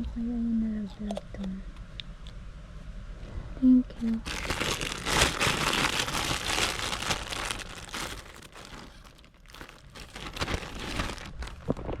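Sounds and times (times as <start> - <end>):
plastic packaging crinkling: 4.2 - 12.0.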